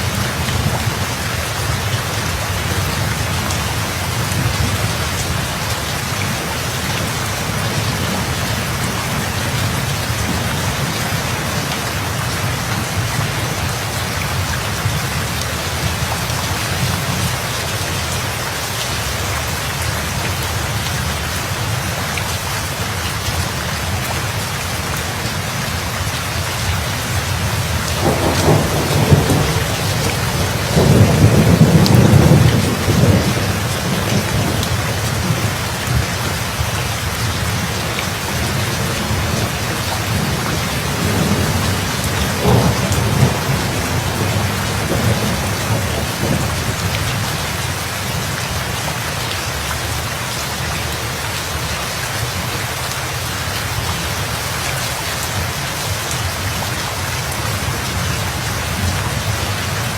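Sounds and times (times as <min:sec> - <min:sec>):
heavy rain falling: 0:00.0 - 0:59.9
thunder rumbling: 0:26.7 - 0:47.4.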